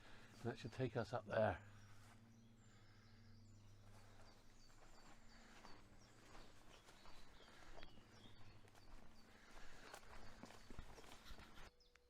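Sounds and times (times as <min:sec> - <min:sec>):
small birds chirping: 0:00.0 - 0:12.0
footsteps on woodland path: 0:01.7 - 0:02.8, 0:03.6 - 0:11.8.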